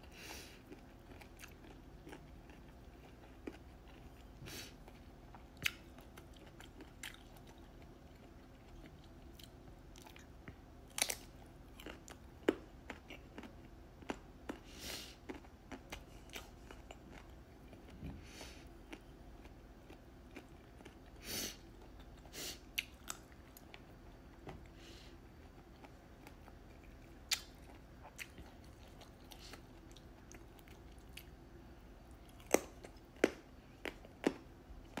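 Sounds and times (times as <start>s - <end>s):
person biting and chewing: 32.2s - 35.0s.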